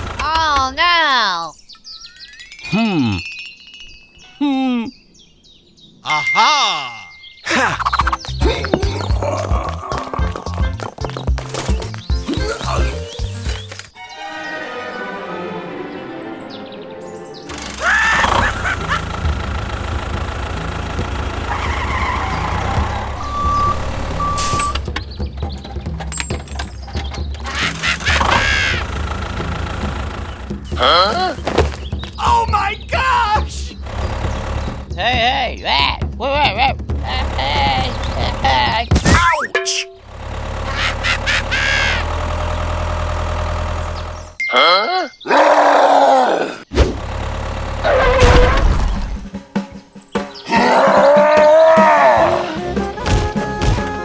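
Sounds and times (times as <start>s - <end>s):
small machine engine rumble: 0.0s - 0.8s, 17.5s - 39.1s, 39.8s - 44.4s, 46.7s - 50.0s, 51.8s - 54.0s
rough grunt: 6.6s - 11.0s, 12.2s - 13.1s, 30.7s - 32.4s, 44.6s - 46.8s, 50.5s - 52.6s
low engine-like drone: 17.5s - 31.2s
short even beeps: 23.2s - 24.9s
wavering pitched cry: 40.7s - 42.1s.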